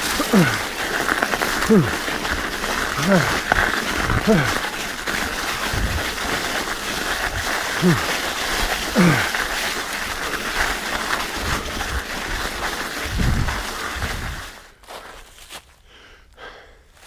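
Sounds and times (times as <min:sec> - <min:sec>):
rider grunting: 0:00.0 - 0:06.3, 0:07.4 - 0:09.7
bike rattling over rocky trail: 0:00.0 - 0:15.5.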